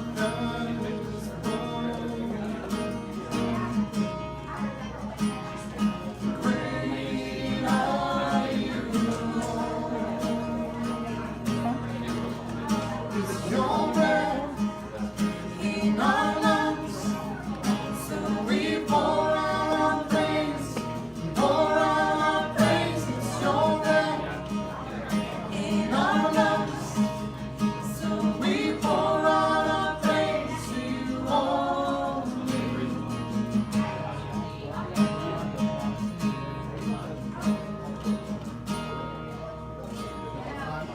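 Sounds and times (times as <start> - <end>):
strummed acoustic guitar: 0.0 - 40.9
person singing: 27.9 - 33.1.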